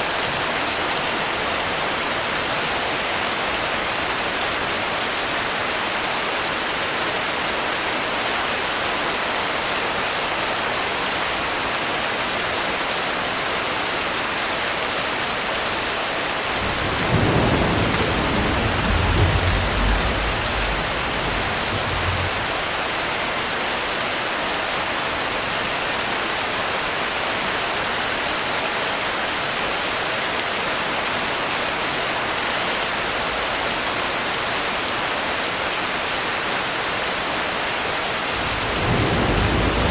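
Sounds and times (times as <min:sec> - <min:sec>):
steady rain: 0:00.0 - 0:39.9
thunder rumbling: 0:16.5 - 0:23.0, 0:38.4 - 0:39.9.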